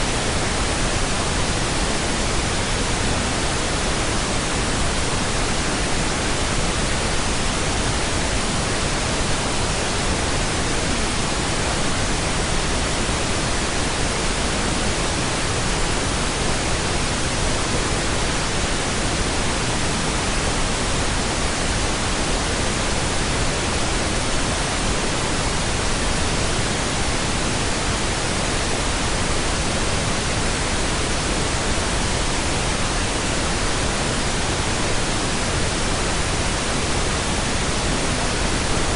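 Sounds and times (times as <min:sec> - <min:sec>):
steady pink noise hiss: 0:00.0 - 0:38.9.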